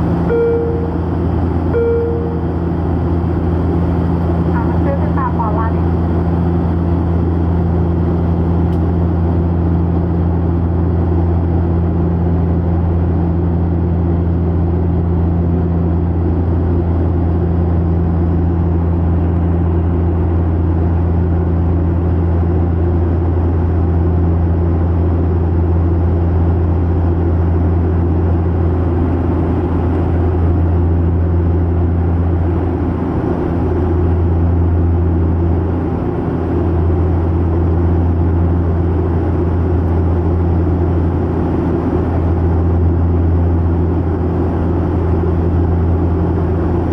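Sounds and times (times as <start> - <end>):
aircraft engines droning: 0.0 - 46.9.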